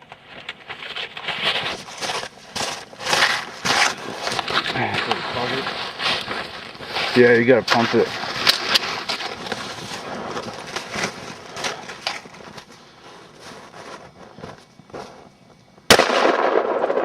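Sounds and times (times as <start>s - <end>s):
air gun firing crack: 15.9s - 17.0s.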